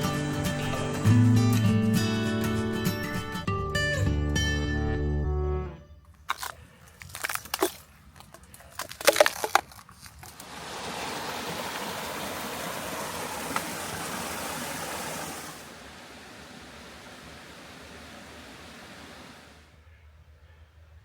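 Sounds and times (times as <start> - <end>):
sharp cracks and crunches: 6.1 - 10.4
waterfall rushing: 10.4 - 19.6.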